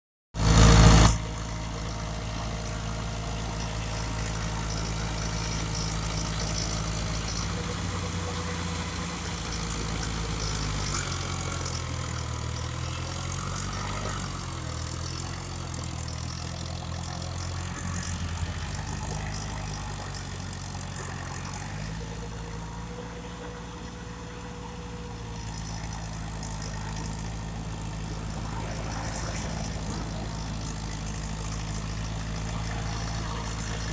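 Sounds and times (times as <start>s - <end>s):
tractor diesel engine running: 0.4s - 33.9s.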